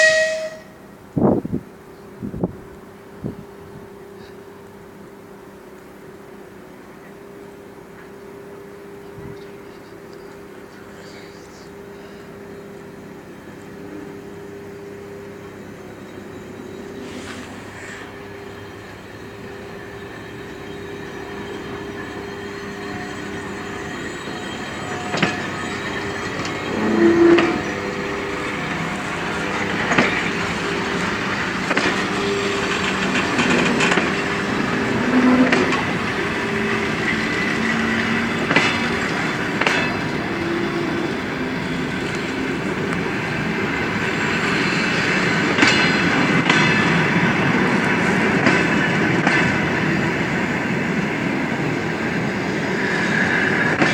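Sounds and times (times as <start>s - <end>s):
wheel squeal: 15.4s - 47.1s
train wheels clicking over rail joints: 17.3s - 53.9s.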